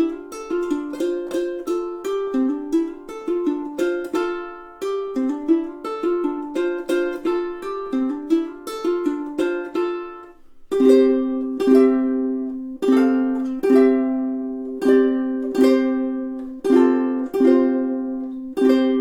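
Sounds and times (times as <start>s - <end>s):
ukulele chords strummed: 0.0s - 19.0s
ukulele fingerpicked notes: 0.0s - 19.0s.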